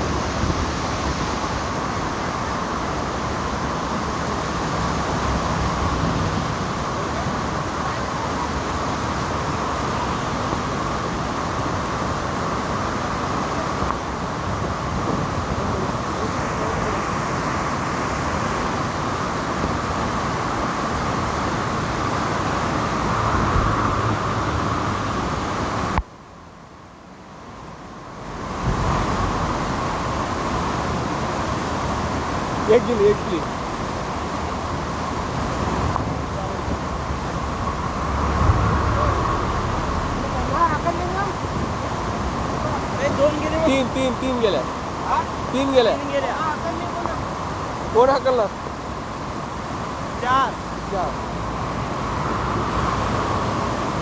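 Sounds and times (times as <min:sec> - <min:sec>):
heavy rain falling: 0:00.0 - 0:17.2, 0:28.2 - 0:53.8.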